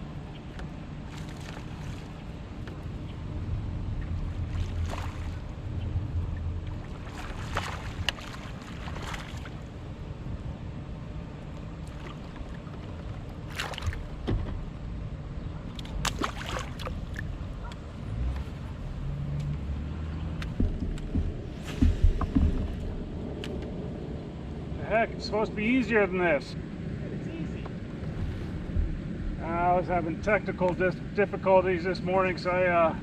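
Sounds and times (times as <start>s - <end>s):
low wind rumble: 0.0s - 33.0s
water sloshing against hull: 0.1s - 14.8s, 15.4s - 19.1s, 20.0s - 23.8s
short splashes or knocks: 1.1s - 2.2s, 4.4s - 5.5s, 6.8s - 9.6s, 11.8s - 14.6s, 15.8s - 17.3s.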